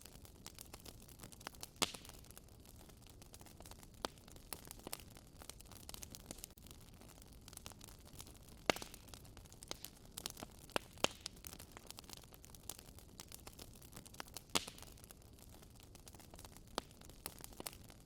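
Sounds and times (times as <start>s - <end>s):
fire pops: 0.0s - 18.0s
wood fire crackling: 0.0s - 18.0s.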